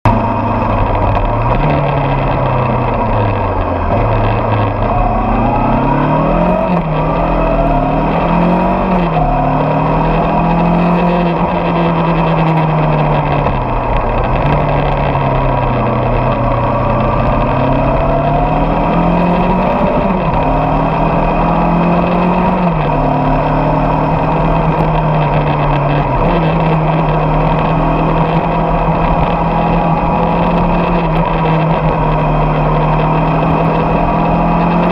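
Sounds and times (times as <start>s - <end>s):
motorcycle engine shifting gears: 0.0s - 34.9s.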